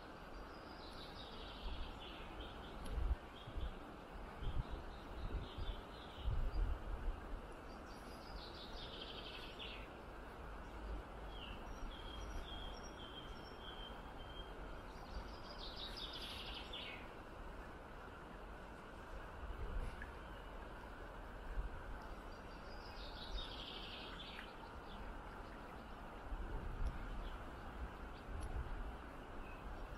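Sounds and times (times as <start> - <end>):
outdoor background hiss: 0.0 - 29.9
songbirds singing: 0.2 - 6.8, 7.5 - 17.2, 19.8 - 21.2, 21.8 - 29.9.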